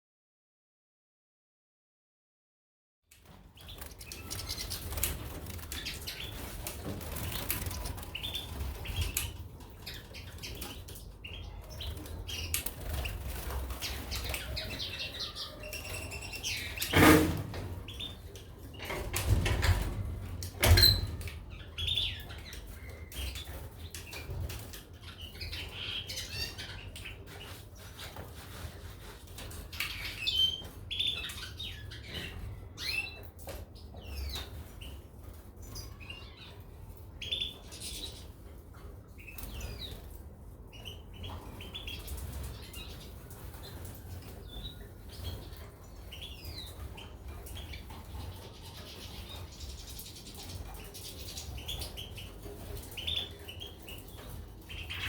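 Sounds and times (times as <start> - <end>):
birds fluttering wings: 3.2 - 11.0, 11.7 - 15.0
birds chirping: 3.3 - 19.8, 20.6 - 28.2.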